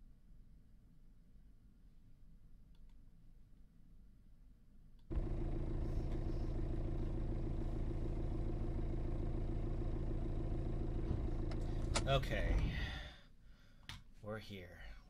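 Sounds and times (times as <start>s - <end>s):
car engine running: 5.1s - 12.8s.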